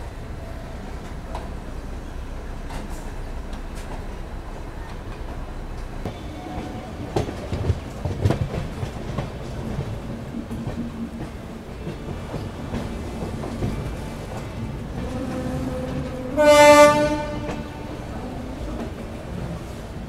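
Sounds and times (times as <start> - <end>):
train wheels clattering on rails: 0.1 - 20.0.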